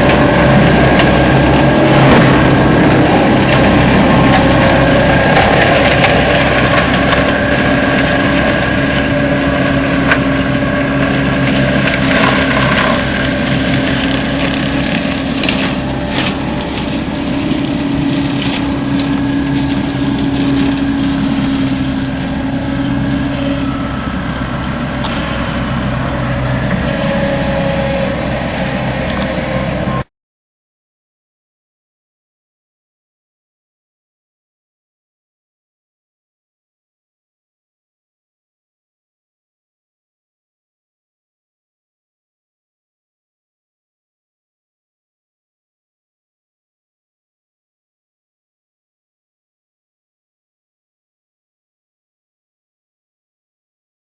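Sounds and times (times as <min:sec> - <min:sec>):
wood cracking: 0:00.0 - 0:23.6
mulcher rotor grinding: 0:00.0 - 0:30.0
engine drone: 0:00.0 - 0:30.1.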